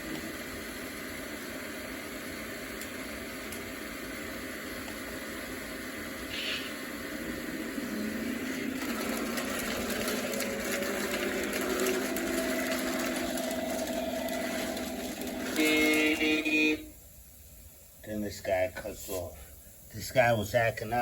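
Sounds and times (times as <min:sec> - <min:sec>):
model trains rumbling on track: 0:00.0 - 0:16.9
faint motor tones: 0:00.0 - 0:17.0
train horn blast: 0:13.7 - 0:17.0.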